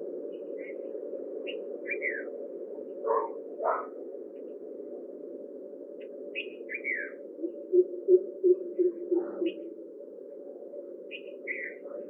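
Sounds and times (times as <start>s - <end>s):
low background hum: 0.0s - 12.0s
birds chirping: 6.3s - 9.8s, 11.1s - 12.0s.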